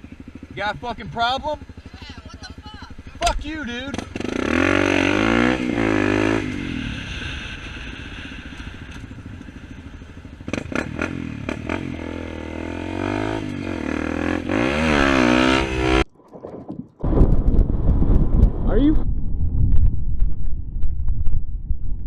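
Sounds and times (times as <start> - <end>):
motorcycle engine idling and revving: 0.0 - 16.1.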